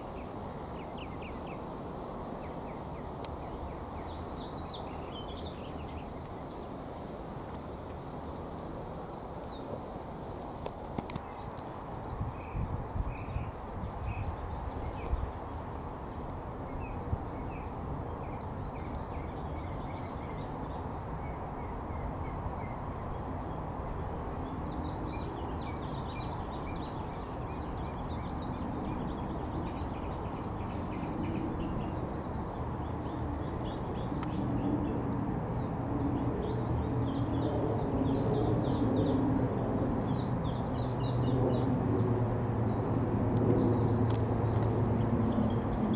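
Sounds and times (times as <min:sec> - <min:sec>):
small birds chirping: 0:00.1 - 0:07.8, 0:42.7 - 0:45.9.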